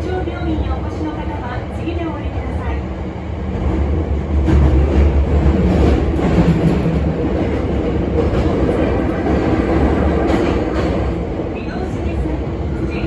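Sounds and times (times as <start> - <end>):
train rumbling in tunnel: 0.0 - 13.0
rail-joint clicks: 4.5 - 11.2.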